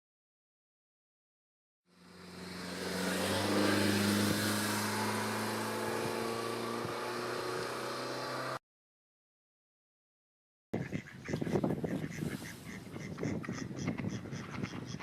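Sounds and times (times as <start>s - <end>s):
vehicle engine hum: 1.9s - 8.6s.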